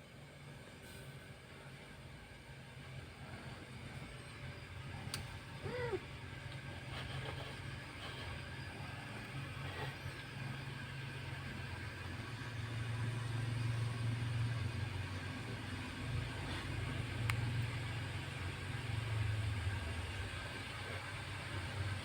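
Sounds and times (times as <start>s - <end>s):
cat purring: 4.9s - 12.9s.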